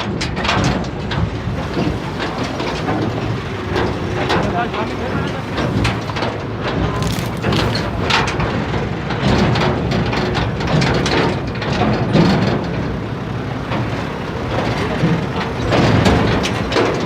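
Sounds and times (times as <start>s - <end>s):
tractor engine running: 0.1s - 17.0s.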